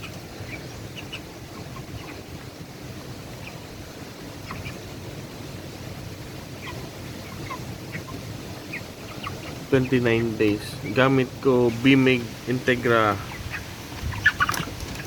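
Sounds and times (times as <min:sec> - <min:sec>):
chickens peeping: 0:00.0 - 0:15.0
low rumble of wind: 0:00.0 - 0:15.0.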